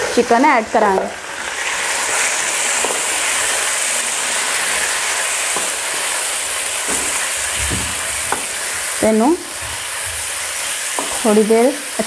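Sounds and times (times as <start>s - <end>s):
food sizzling in hot oil: 0.0s - 12.0s
wooden spatula tapping: 6.8s - 8.6s, 9.5s - 11.3s.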